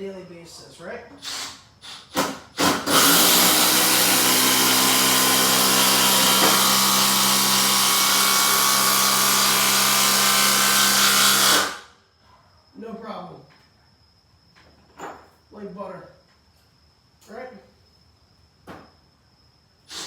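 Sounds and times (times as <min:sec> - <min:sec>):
impact driver driving screw: 0:02.1 - 0:07.4.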